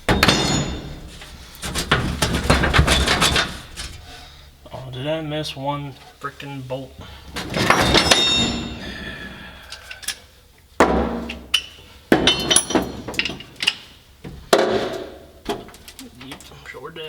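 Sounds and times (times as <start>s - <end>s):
metal clanking and knocking: 0.0s - 4.4s, 7.3s - 9.4s, 10.8s - 16.4s.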